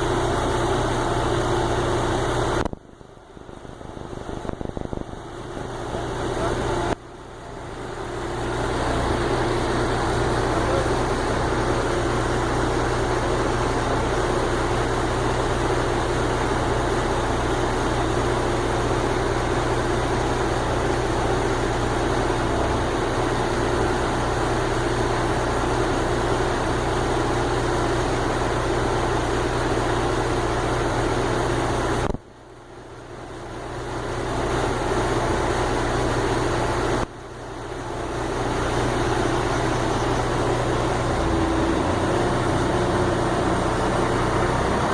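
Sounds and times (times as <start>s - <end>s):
engine running: 0.0s - 44.9s.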